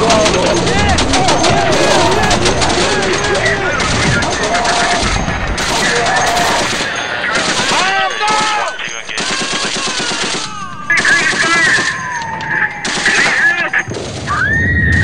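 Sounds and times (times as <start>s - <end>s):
deep explosion: 0.0s - 7.5s, 13.9s - 15.0s
rapid machine-gun fire: 0.0s - 14.3s
long falling whistle: 14.3s - 15.0s.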